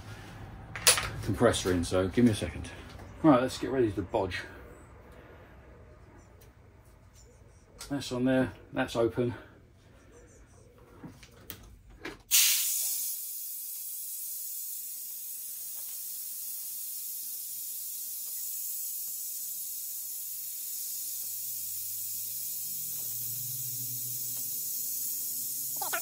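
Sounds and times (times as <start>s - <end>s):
compressed air hissing: 12.3s - 26.0s.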